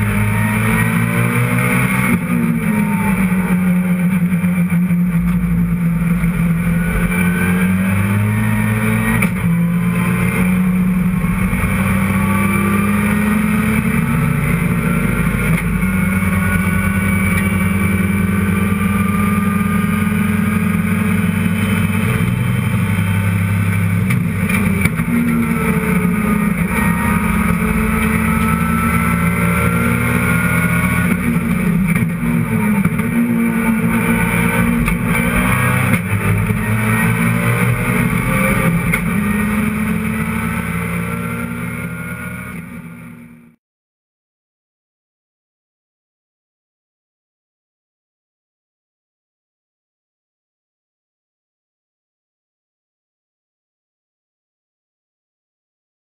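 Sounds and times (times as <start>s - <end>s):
race car engine under load: 0.0s - 43.4s.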